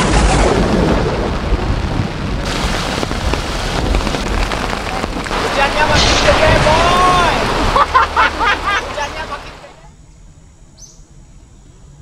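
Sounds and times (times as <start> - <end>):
heavy rain pouring: 0.0 - 9.8
rainwater running over ground: 0.0 - 9.8
steady low rumble: 0.4 - 9.7.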